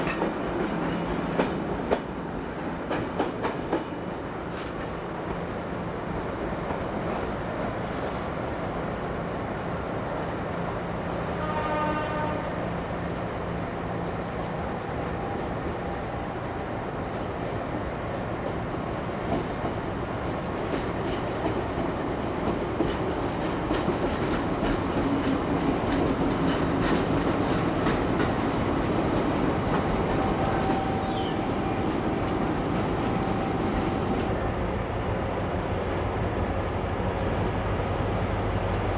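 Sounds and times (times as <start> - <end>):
train wheels clicking on rails: 0.0 - 7.7, 13.0 - 34.6
train horn: 11.3 - 12.8, 30.1 - 31.8.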